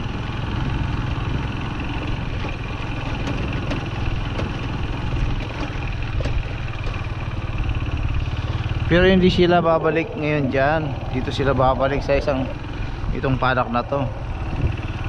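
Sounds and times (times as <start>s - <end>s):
farm vehicle engine running: 0.0s - 15.0s
light clicks and rattles: 1.9s - 7.3s.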